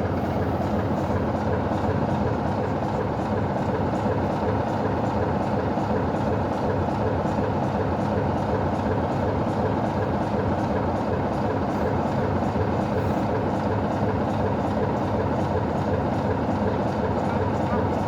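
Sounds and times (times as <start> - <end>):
train rumble: 0.0 - 5.1
train engine drone: 0.0 - 7.0, 9.0 - 18.0.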